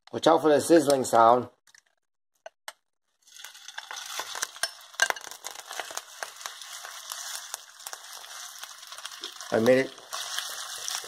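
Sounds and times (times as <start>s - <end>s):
chicken sizzling in hot oil: 3.2s - 11.0s.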